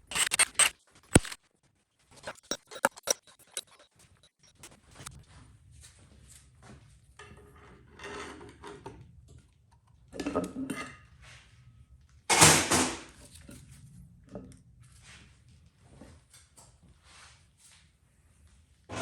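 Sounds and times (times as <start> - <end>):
metal tools clattering: 0.0 - 1.4, 2.2 - 3.8.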